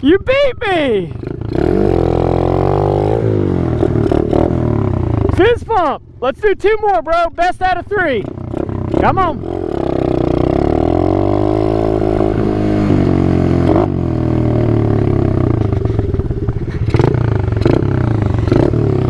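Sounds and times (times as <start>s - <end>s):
small engine running at low revs: 1.2s - 5.4s, 8.2s - 19.0s.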